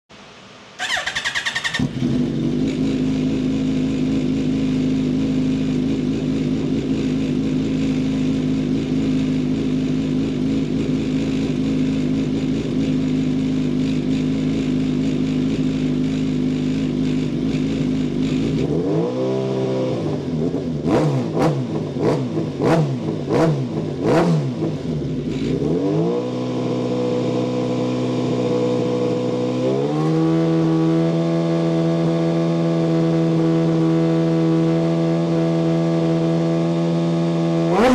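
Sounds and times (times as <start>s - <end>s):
engine crackles: 0.8s - 19.1s
race car engine revving: 18.3s - 27.8s, 28.9s - 37.9s.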